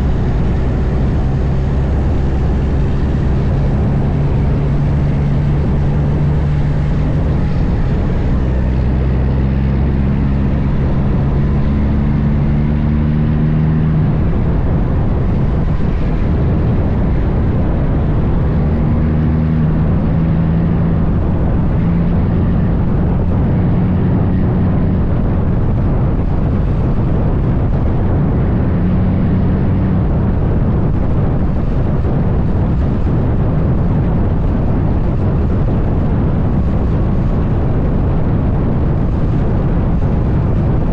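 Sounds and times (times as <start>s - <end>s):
diesel truck engine running: 0.0s - 40.9s
road and wind noise: 0.0s - 40.9s.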